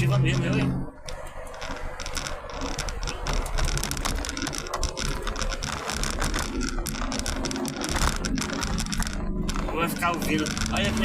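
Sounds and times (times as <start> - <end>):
car road rumble: 0.0 - 11.0.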